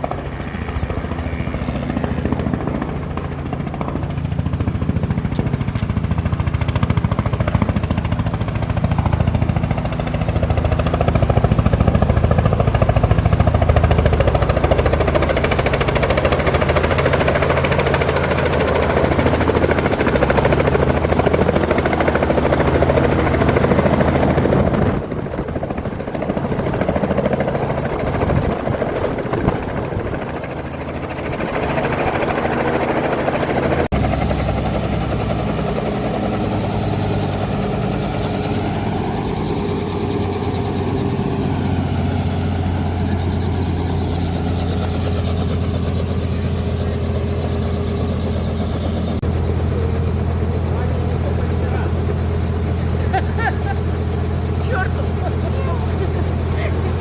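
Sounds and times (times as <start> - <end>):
helicopter rotor and engine throb: 0.0 - 57.0.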